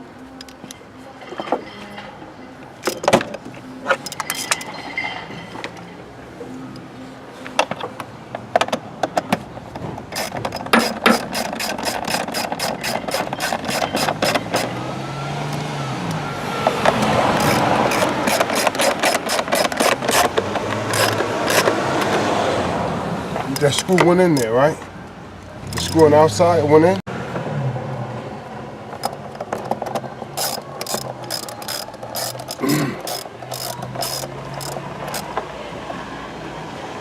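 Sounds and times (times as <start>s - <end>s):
hand tools clicking and clattering: 2.8s - 5.9s, 7.6s - 14.8s, 16.6s - 22.2s, 28.9s - 35.5s.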